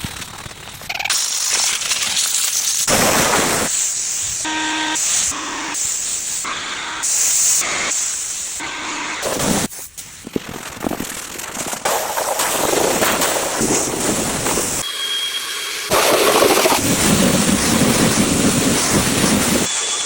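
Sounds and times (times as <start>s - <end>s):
pressure washer spray hissing: 1.1s - 10.2s.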